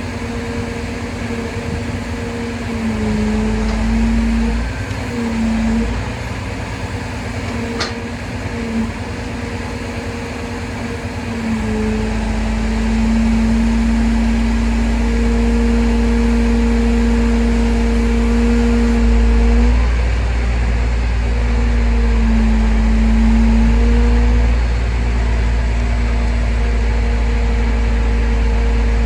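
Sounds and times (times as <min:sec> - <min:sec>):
heavy machine humming: 0:00.0 - 0:29.0
deep rumble: 0:27.7 - 0:29.0.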